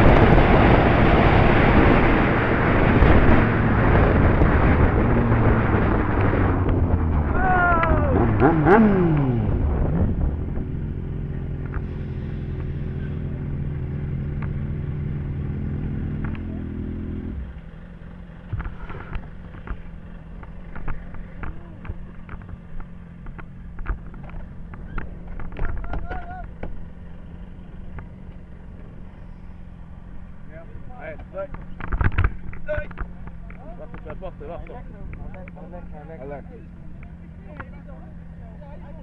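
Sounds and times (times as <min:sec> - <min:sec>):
motorcycle engine revving and running: 0:00.0 - 0:39.0.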